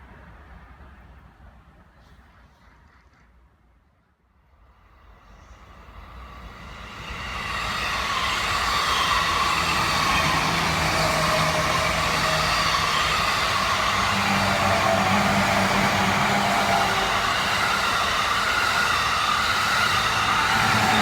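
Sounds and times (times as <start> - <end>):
train hum: 4.5 - 21.0
electric train passing: 4.8 - 21.0.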